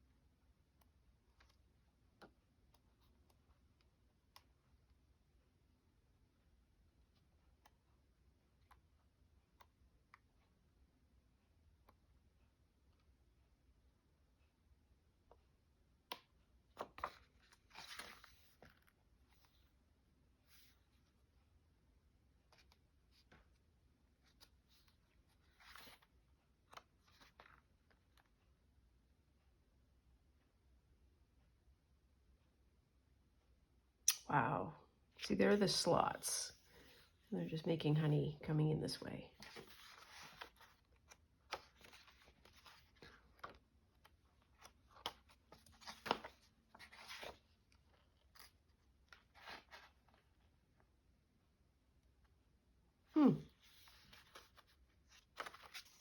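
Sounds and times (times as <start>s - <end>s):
paper rustling: 16.7s - 19.6s, 39.4s - 50.3s, 53.6s - 56.0s.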